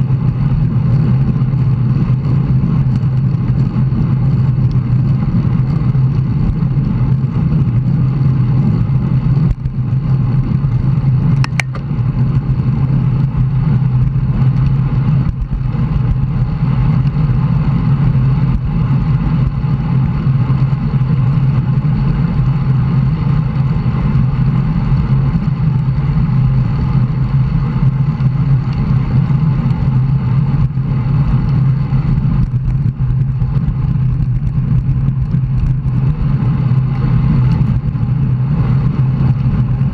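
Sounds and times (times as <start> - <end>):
bicycle road noise: 0.0 - 39.9
wind rush on microphone: 0.0 - 39.9
sharp click: 11.4 - 11.9.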